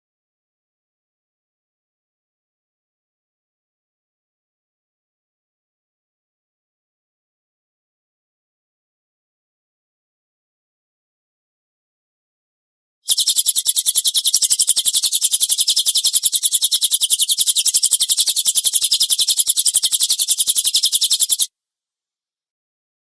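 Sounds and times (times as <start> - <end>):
recorded bird song rapid notes: 13.1 - 21.5.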